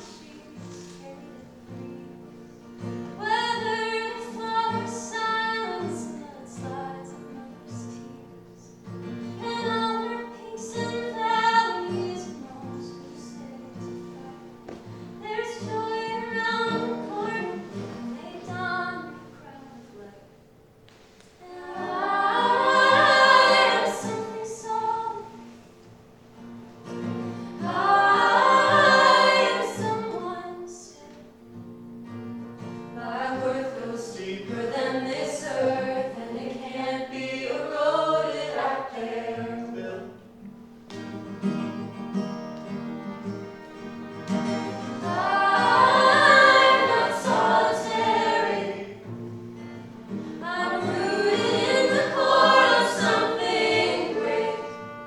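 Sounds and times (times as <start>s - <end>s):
voices singing in harmony: 21.4s - 25.6s, 27.5s - 30.9s, 33.0s - 40.3s, 44.8s - 49.3s, 50.3s - 55.0s.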